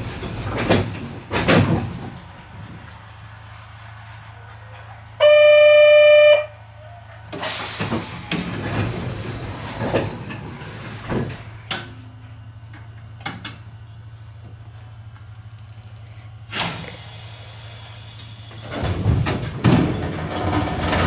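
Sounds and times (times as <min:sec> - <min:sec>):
train clattering and rumbling: 0:00.0 - 0:05.2, 0:06.6 - 0:15.1, 0:16.5 - 0:21.0
loud buzzer tone: 0:05.2 - 0:06.6.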